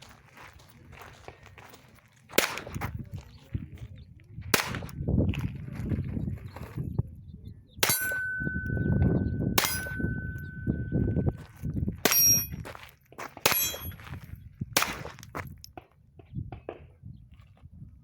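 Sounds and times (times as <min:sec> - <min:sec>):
pistol shots: 0:02.4 - 0:02.8, 0:04.5 - 0:05.0, 0:07.8 - 0:08.7, 0:09.5 - 0:10.7, 0:12.0 - 0:12.6, 0:13.4 - 0:14.0, 0:14.8 - 0:15.2
steel target clanging: 0:07.8 - 0:11.4, 0:12.0 - 0:12.7, 0:13.5 - 0:14.0.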